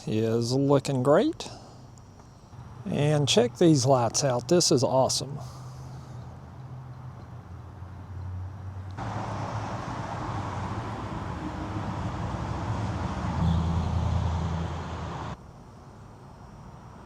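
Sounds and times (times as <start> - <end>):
car passing: 6.4 - 15.4.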